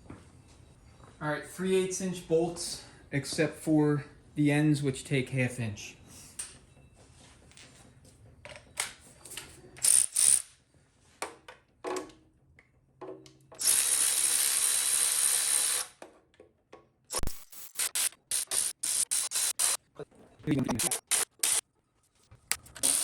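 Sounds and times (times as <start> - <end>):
power tool running: 17.2 - 19.8
ratchet clicks: 17.6 - 19.8, 22.5 - 23.0.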